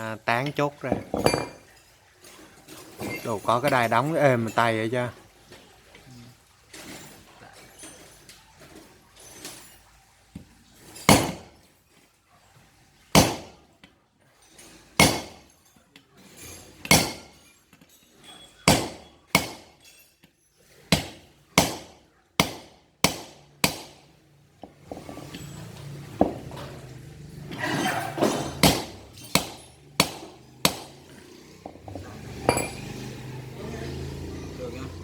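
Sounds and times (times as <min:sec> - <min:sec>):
hammer striking metal punch: 0:15.0 - 0:15.4, 0:16.9 - 0:17.3, 0:21.0 - 0:24.0, 0:28.3 - 0:31.0.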